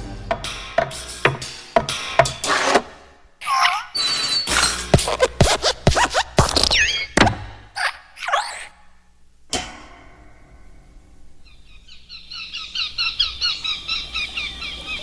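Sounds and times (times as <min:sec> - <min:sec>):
rapid high-pitched chirping: 0:11.4 - 0:15.0.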